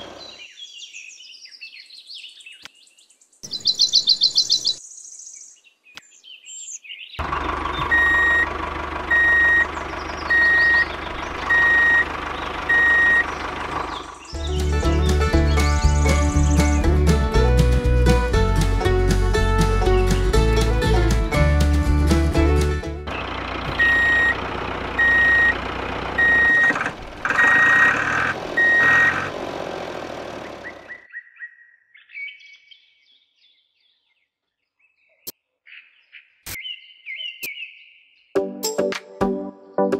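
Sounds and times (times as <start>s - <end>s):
engine running: 0.0s - 0.4s, 7.2s - 31.0s
vehicle reversing alarm beeping: 7.2s - 14.2s, 23.6s - 29.3s.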